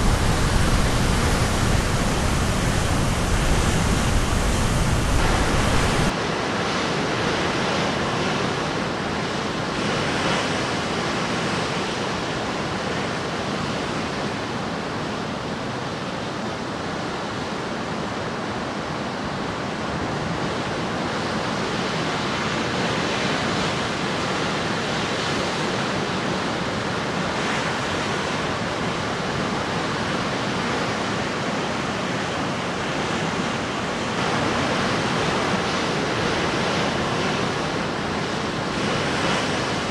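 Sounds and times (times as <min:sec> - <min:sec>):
surf crashing on shore: 0:00.0 - 0:18.3, 0:19.3 - 0:39.9.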